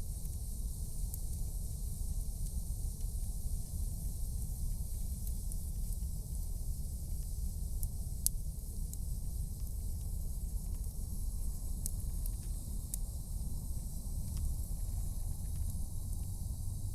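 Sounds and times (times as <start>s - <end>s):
campfire hissing: 0.0s - 16.9s
fire crackles and pops: 0.0s - 16.9s.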